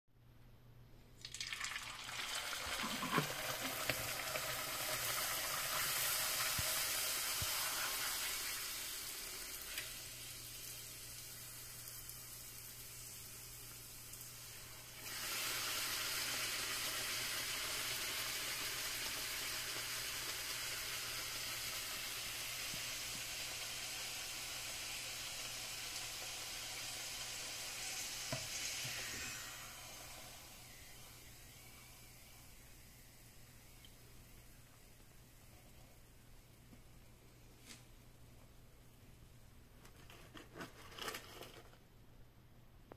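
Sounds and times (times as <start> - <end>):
dough sizzling in hot oil: 1.2 - 35.0.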